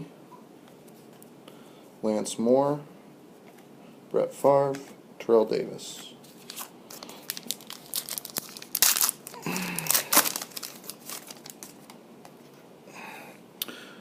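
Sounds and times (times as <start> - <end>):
card pack wrapper crinkling: 6.3 - 12.0.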